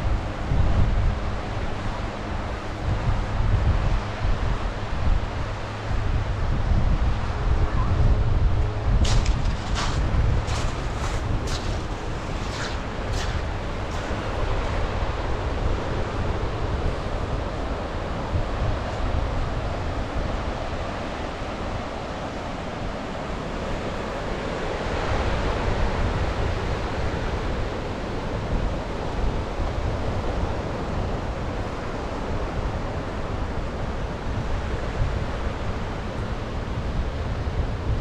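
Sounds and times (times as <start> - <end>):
wind buffeting microphone: 0.0 - 22.2
sea waves washing onto shore: 9.0 - 18.8.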